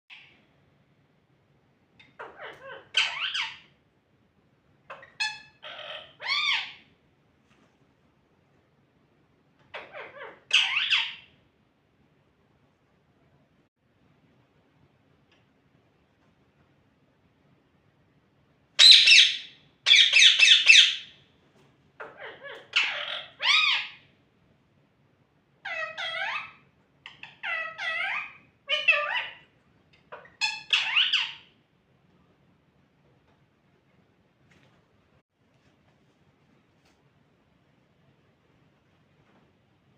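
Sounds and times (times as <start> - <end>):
parrot squawks and chirps: 2.0 - 3.8, 4.8 - 6.9, 9.6 - 11.4, 18.8 - 21.2, 22.0 - 24.1, 25.6 - 31.6.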